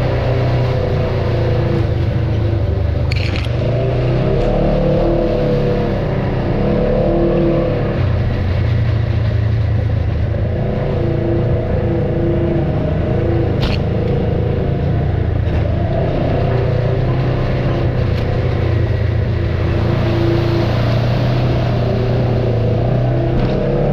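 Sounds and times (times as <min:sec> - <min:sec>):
off-road vehicle engine running: 0:00.0 - 0:23.9
sharp click: 0:03.1 - 0:03.6, 0:13.6 - 0:13.9.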